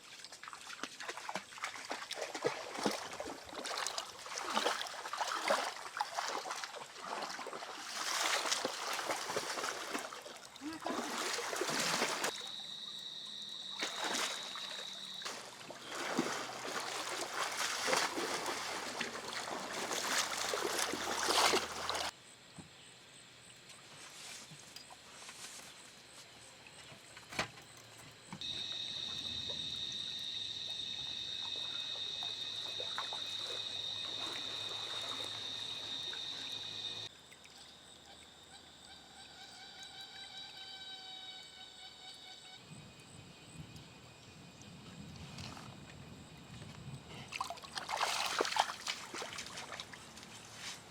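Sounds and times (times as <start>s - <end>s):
water splashing and trickling: 0.0s - 13.0s, 13.6s - 22.1s, 26.5s - 38.4s, 44.6s - 50.9s.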